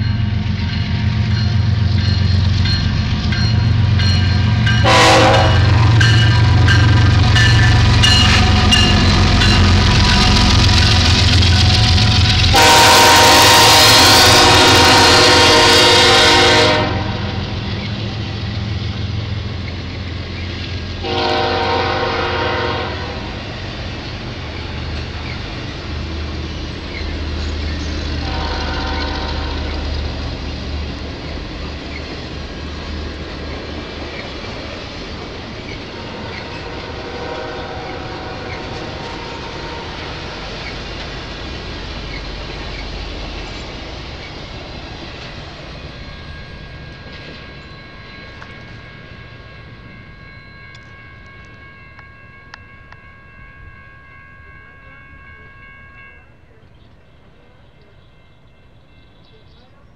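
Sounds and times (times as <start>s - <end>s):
train cars rolling on rails: 0.0s - 59.9s
distant train horn: 3.6s - 19.6s, 20.8s - 23.7s, 27.6s - 31.6s, 35.9s - 41.3s, 45.7s - 59.8s.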